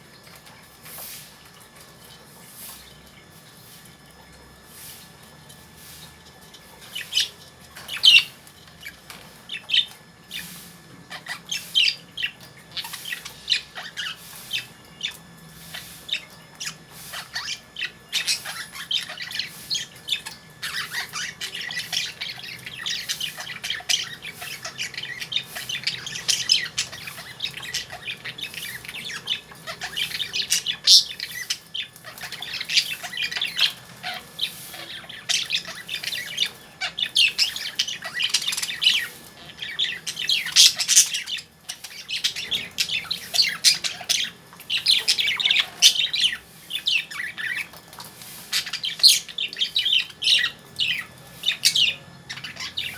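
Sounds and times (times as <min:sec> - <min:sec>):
lovebirds chirping and squawking: 0:00.0 - 0:52.9.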